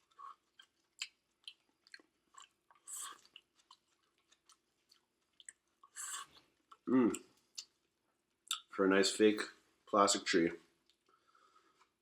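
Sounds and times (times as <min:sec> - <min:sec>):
chewing and biting food: 0:00.0 - 0:06.8.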